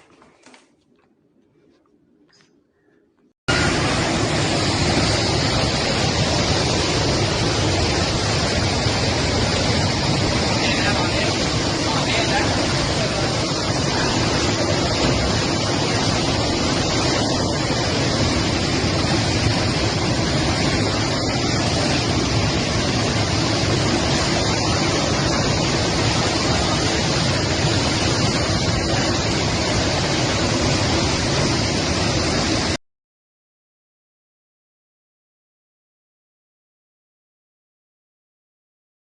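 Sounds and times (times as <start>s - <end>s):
roar of rushing floodwater: 3.5s - 32.8s.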